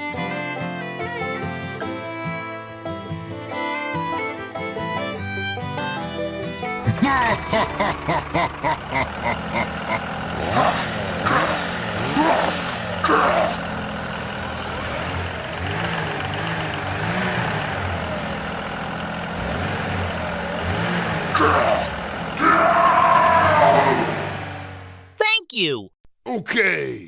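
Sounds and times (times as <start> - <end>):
engine running: 4.1 - 25.2.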